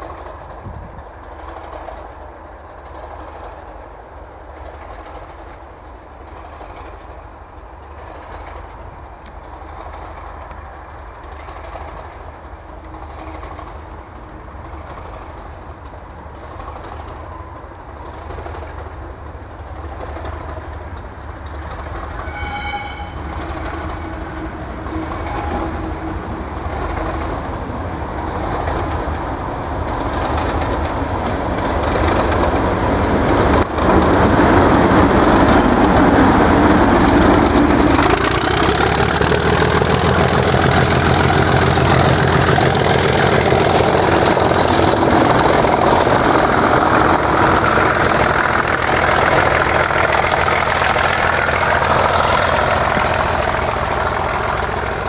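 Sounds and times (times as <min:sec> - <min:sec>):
diesel locomotive engines working hard: 0:00.0 - 0:55.0
high turbocharger whistle: 0:22.2 - 0:26.0.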